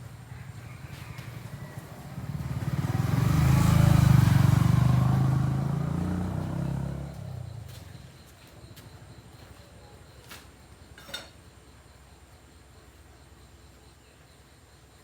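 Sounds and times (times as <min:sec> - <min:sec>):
vehicle engine passing by: 0:00.2 - 0:08.2.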